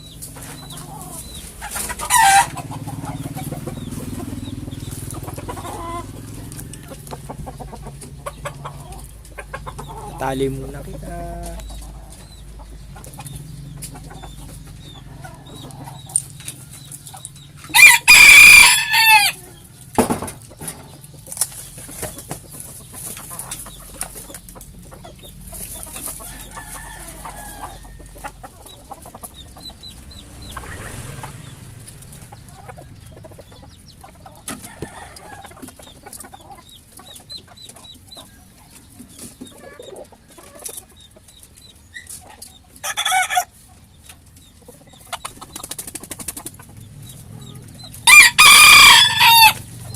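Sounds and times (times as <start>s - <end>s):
chickens clucking: 0.0s - 49.9s
rooster crowing: 17.7s - 19.6s, 26.2s - 28.2s, 48.0s - 49.8s.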